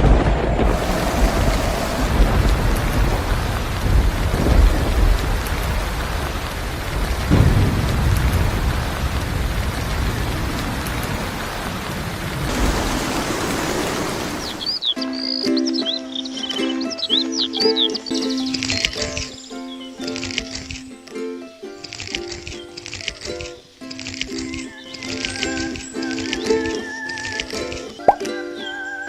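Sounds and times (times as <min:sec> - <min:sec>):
thunder rumbling: 0:00.0 - 0:14.8
heavy rain pouring: 0:00.0 - 0:14.9.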